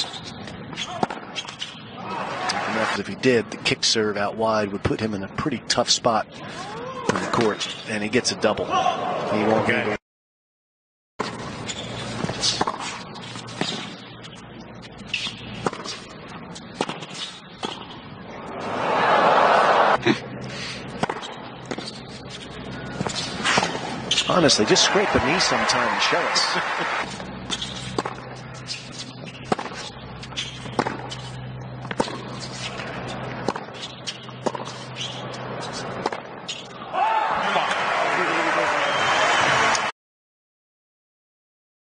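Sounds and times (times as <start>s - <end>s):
stadium crowd hum: 0.0s - 10.0s, 14.8s - 39.9s
crowd cheering: 2.0s - 3.0s, 18.5s - 20.0s, 24.3s - 27.2s, 36.8s - 39.9s
tennis racquet strikes: 12.0s - 14.0s, 15.0s - 16.1s, 16.8s - 17.9s, 20.9s - 26.3s, 27.0s - 36.6s
tennis ball bounces: 15.1s - 16.0s, 16.8s - 18.0s, 20.9s - 26.1s, 27.0s - 36.6s.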